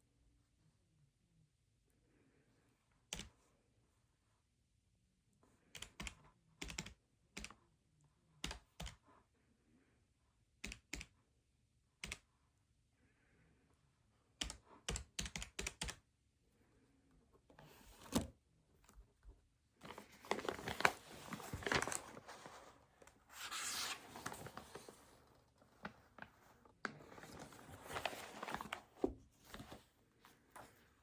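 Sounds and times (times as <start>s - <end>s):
paper rustling and crinkling: 17.6s - 18.3s, 19.8s - 31.0s.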